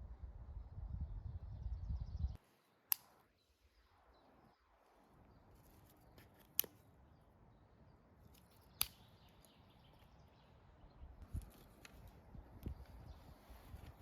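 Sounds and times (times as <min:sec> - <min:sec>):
sharp single clicks: 0:02.9 - 0:03.2, 0:08.3 - 0:09.6.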